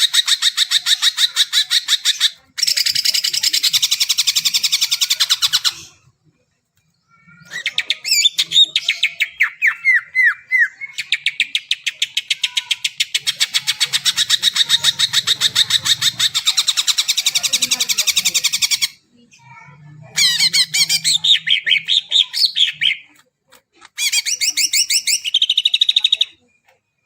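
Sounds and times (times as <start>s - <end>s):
bird singing: 6.8s - 23.1s.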